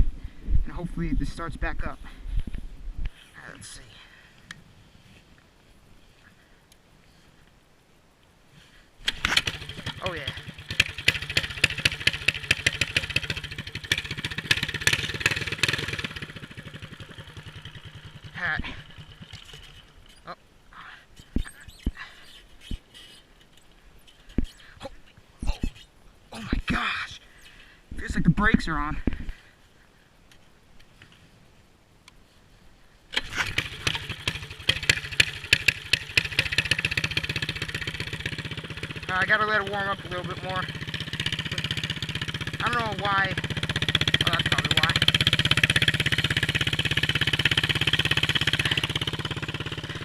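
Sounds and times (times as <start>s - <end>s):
mini bike engine running: 9.1s - 20.3s, 33.2s - 50.0s.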